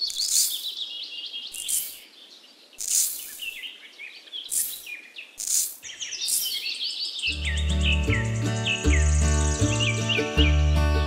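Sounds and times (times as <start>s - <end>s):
dry sand scooped and poured: 0.0s - 0.8s, 1.6s - 2.1s, 2.8s - 3.6s, 4.5s - 6.6s
small birds chirping: 0.0s - 11.0s.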